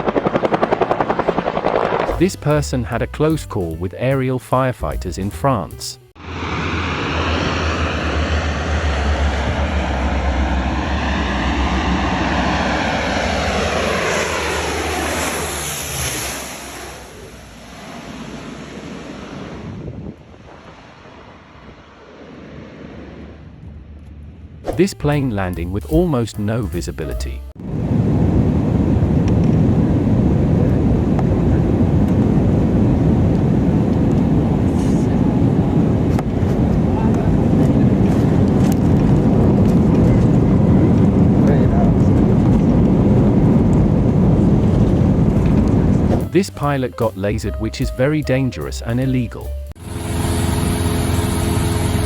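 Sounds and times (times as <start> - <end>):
airplane engines rumbling: 0.0 - 52.0
rushing air: 6.2 - 23.5
aircraft passing low overhead: 6.2 - 24.6, 27.6 - 46.4, 49.7 - 52.0.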